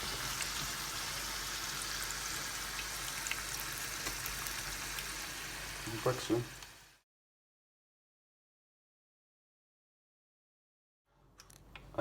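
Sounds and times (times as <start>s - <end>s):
hot oil sizzling: 0.0s - 7.0s.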